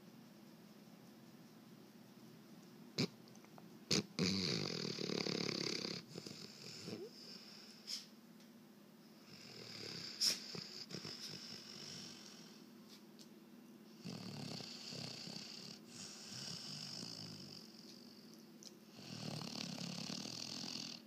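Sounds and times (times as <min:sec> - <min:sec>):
dog snoring: 0:03.0 - 0:03.2, 0:03.9 - 0:08.0, 0:09.2 - 0:12.6, 0:14.0 - 0:18.3, 0:18.9 - 0:21.0.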